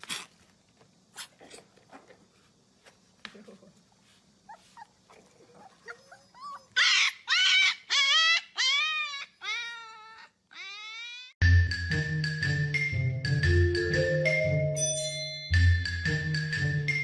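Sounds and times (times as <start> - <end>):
puppy howling: 5.5 - 11.4.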